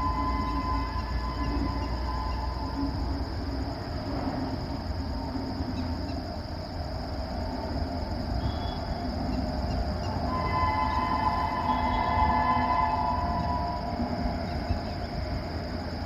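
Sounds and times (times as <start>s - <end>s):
train horn blasts: 0.0s - 2.8s, 10.1s - 15.6s
wheels rumbling on rails: 0.0s - 16.0s.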